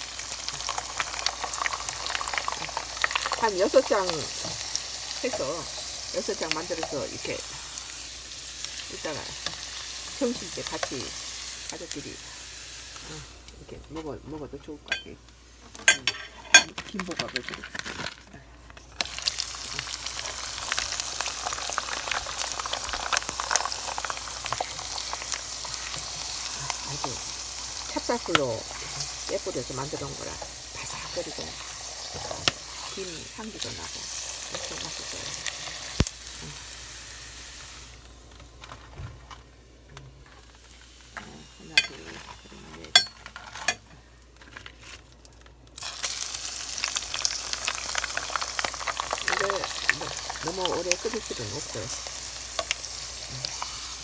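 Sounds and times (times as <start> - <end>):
popping oil crackle: 0.0 - 7.9, 14.9 - 36.8, 43.7 - 54.0
food sizzling in hot oil: 0.0 - 13.7, 14.9 - 17.9, 18.8 - 38.6, 40.3 - 43.8, 45.8 - 54.0.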